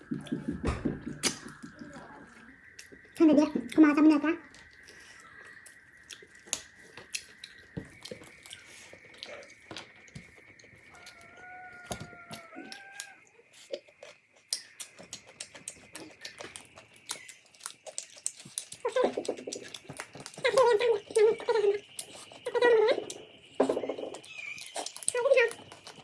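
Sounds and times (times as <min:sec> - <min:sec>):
chewing and biting: 0:04.6 - 0:26.0.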